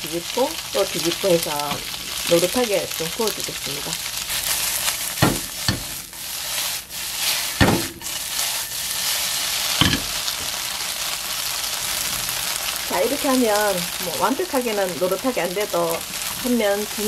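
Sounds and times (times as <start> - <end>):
food sizzling in oil: 0.0 - 17.0
wok knocking: 5.1 - 6.2, 7.5 - 8.8, 9.8 - 10.6.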